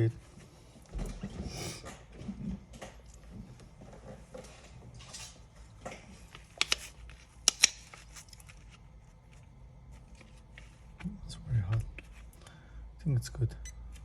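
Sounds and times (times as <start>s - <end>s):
tools clicking and tapping on tablet: 6.4s - 8.0s.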